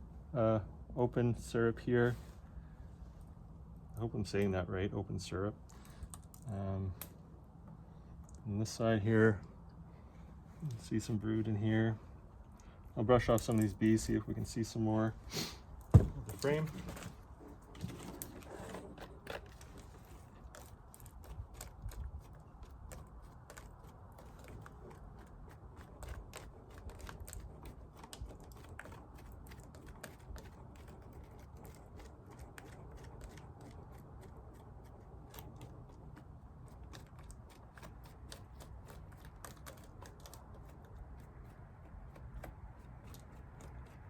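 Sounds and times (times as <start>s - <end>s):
low steady rumble: 0.0s - 44.0s
brush scraping bees off comb: 13.0s - 44.0s.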